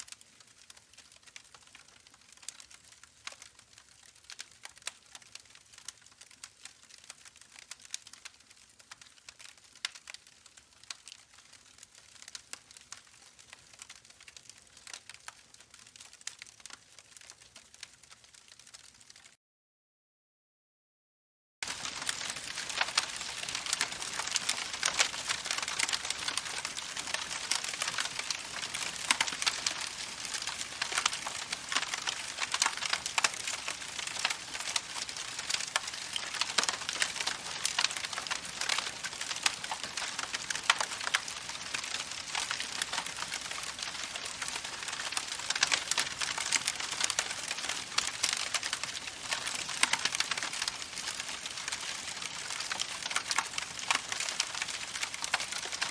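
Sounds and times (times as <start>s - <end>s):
campfire crackling: 0.0s - 19.3s, 21.6s - 55.9s.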